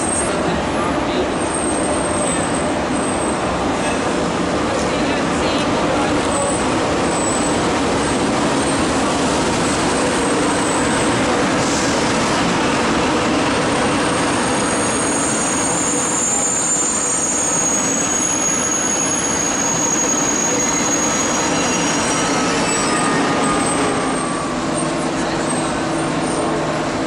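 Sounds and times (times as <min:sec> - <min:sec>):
high-pitched wheel squeal: 0:14.6 - 0:26.5.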